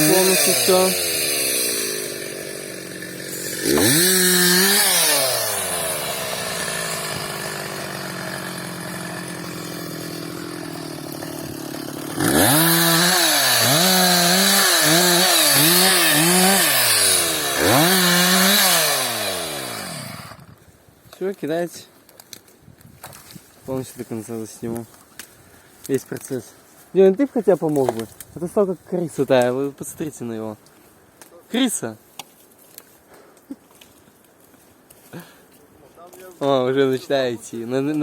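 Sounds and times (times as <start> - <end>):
chainsaw revving and idling: 0.0 - 20.5.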